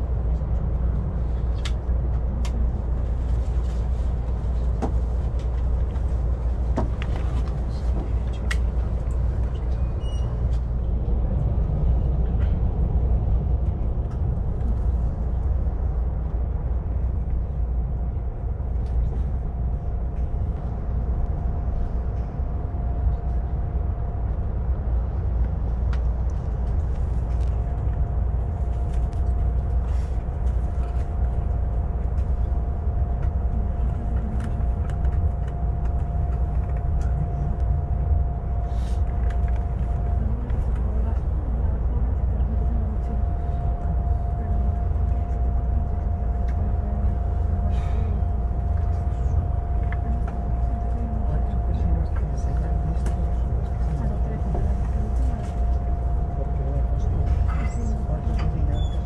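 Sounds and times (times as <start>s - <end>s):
train rumble inside coach: 0.0s - 59.0s
steady whine: 13.3s - 59.0s.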